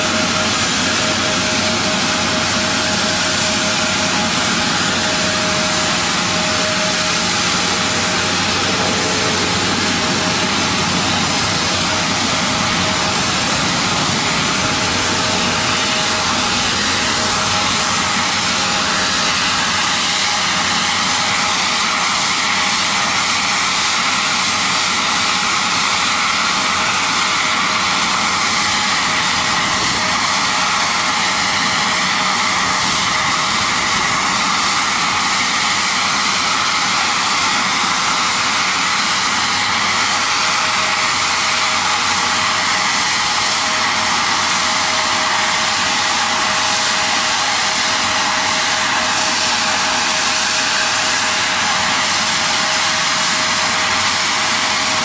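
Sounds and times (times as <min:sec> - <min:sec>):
faint steady whine: 0:00.0 - 0:37.2
jet engine roaring: 0:00.0 - 0:55.0.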